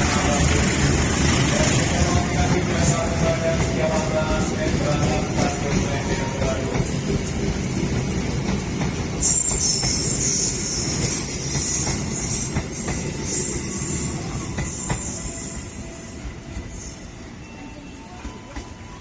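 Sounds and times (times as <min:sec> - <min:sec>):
train low rumble: 0:00.0 - 0:19.0
train wheel squeal: 0:09.2 - 0:19.0.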